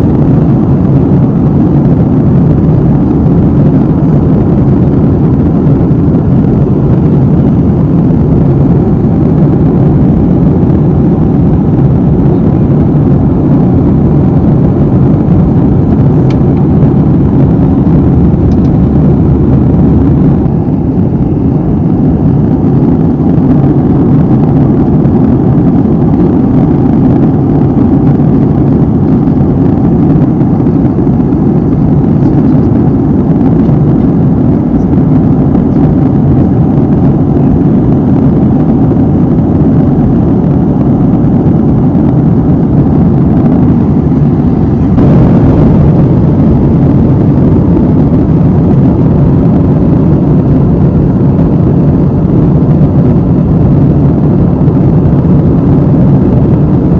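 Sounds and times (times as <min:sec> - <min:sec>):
airliner cabin engine rush: 0:00.0 - 0:56.9.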